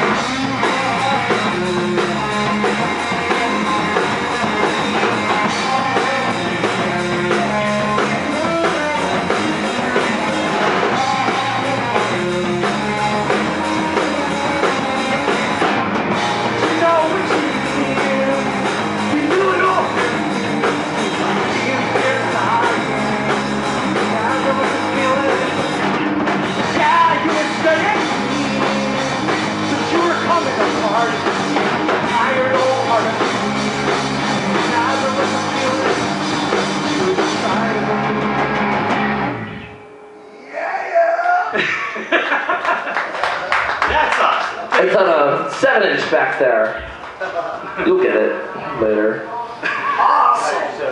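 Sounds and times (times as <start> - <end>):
person singing: 0.0 - 15.8, 16.4 - 20.4, 21.1 - 25.9, 26.6 - 31.1
drum kit: 0.0 - 39.7
electric guitar: 0.0 - 45.1.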